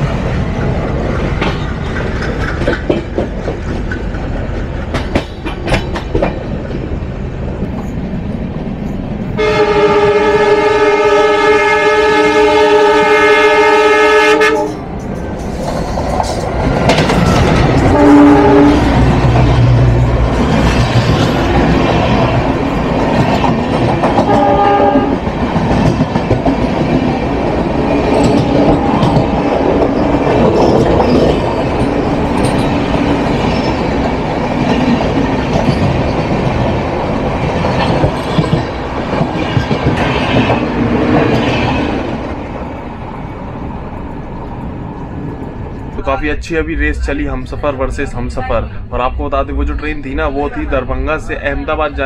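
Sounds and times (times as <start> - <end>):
wheels clattering over rail joints: 0.0 - 6.9
train rumble: 0.0 - 52.0
train horn: 9.4 - 14.8, 17.8 - 19.0, 24.2 - 25.2.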